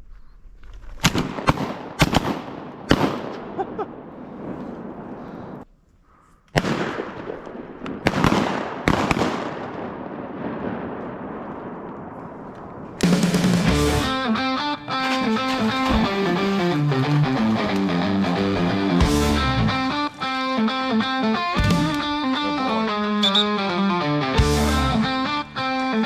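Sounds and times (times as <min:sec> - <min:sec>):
shotgun shots with echo: 0:01.0 - 0:03.6, 0:06.6 - 0:10.3.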